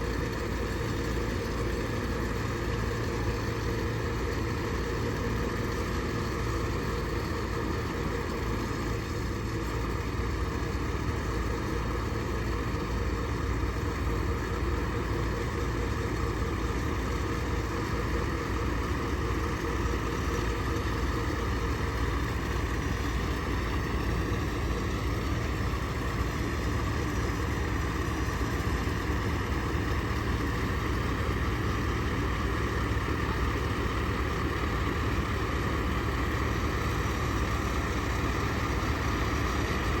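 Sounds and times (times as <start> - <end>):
diesel truck engine running: 0.0 - 40.0.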